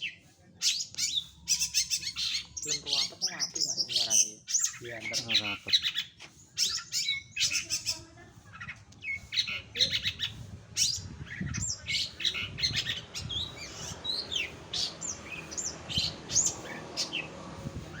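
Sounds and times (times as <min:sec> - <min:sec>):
bird singing chirps and whistles: 0:09.1 - 0:17.3.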